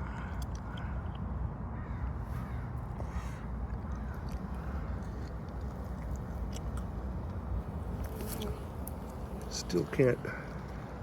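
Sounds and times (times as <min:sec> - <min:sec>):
crow cawing: 0:00.0 - 0:01.2, 0:01.8 - 0:05.0.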